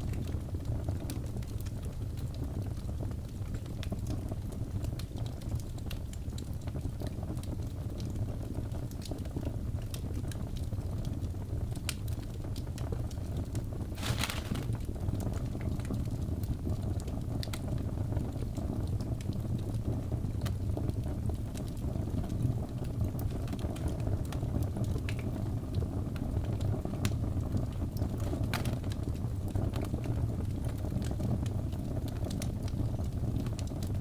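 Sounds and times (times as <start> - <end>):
logs crackling and popping: 8.8 - 17.9, 18.5 - 34.0
fireplace flames rushing: 11.5 - 15.6.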